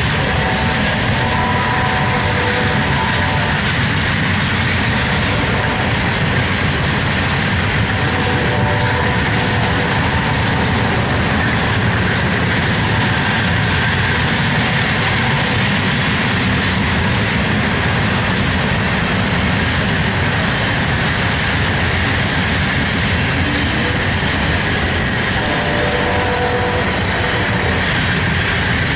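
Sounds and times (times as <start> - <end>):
train wheels rolling on rails: 0.0 - 28.9.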